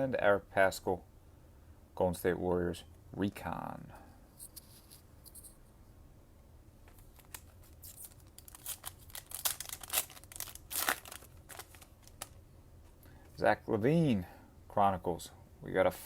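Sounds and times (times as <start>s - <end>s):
wrapper tearing and crinkling: 7.0s - 12.4s.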